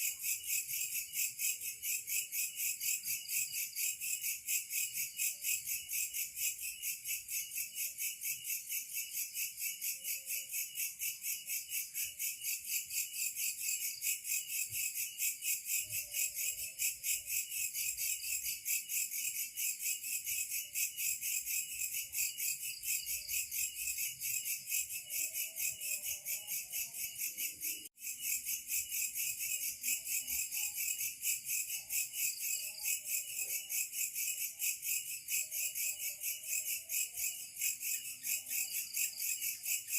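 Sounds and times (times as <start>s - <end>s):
faint lower insect calls: 0.0s - 39.9s
insects trilling: 0.0s - 39.9s.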